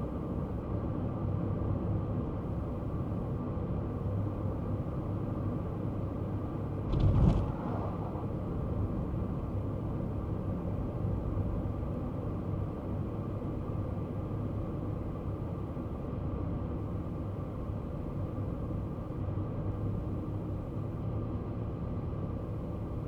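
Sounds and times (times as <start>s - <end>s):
car engine and road rumble: 0.0s - 23.0s
brief thump: 6.9s - 8.8s.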